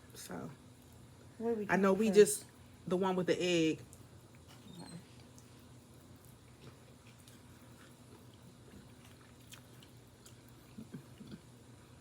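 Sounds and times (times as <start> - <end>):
mouth sounds of eating: 3.9 - 12.0.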